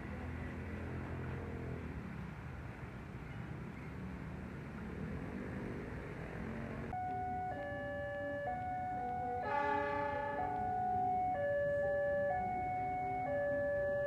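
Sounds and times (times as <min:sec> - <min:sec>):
electronic tone tune: 0:07.0 - 0:14.0.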